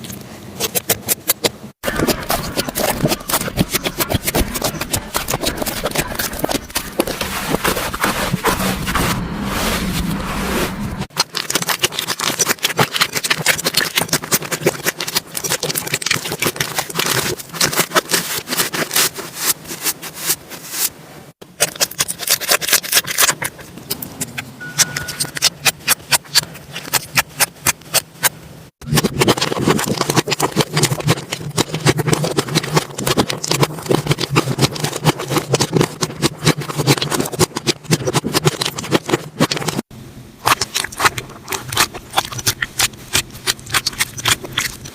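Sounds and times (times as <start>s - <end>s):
slime crackling and popping: 11.1s - 19.2s, 25.0s - 44.9s.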